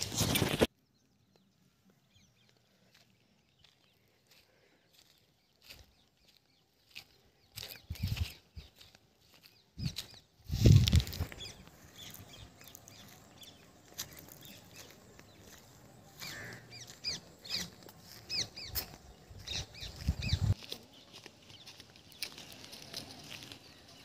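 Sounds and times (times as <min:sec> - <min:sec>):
small birds chirping: 0:00.0 - 0:24.0
footsteps on dry ground: 0:01.9 - 0:24.0.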